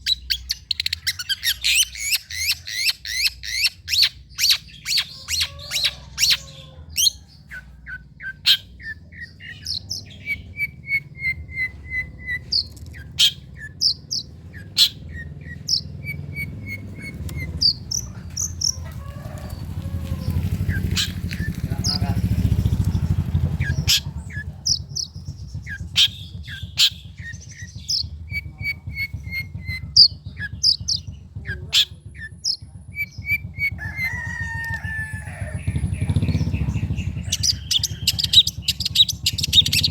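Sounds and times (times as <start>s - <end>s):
bird singing sharp chips: 0.0s - 18.9s, 20.2s - 33.4s
low steady rumble: 0.0s - 39.9s.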